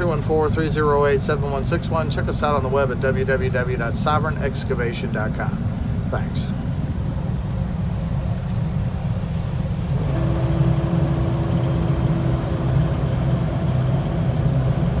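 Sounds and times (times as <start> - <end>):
steady higher hum: 0.0 - 15.0
vehicle engine droning: 6.6 - 15.0.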